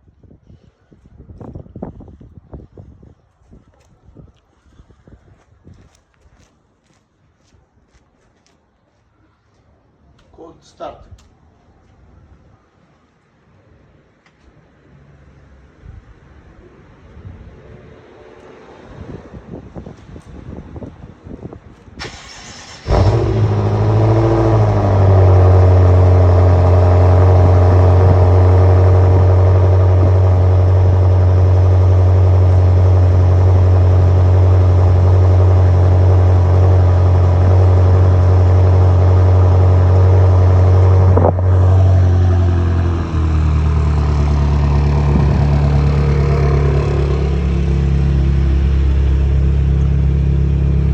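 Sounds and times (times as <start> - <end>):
car engine cranking: 22.0 - 50.9
car engine idling: 22.1 - 50.9.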